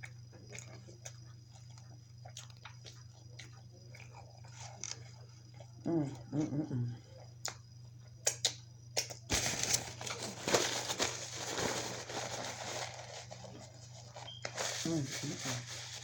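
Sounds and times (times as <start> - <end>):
mouth humming: 5.5 - 7.5
food wrapper crinkling: 9.3 - 15.0.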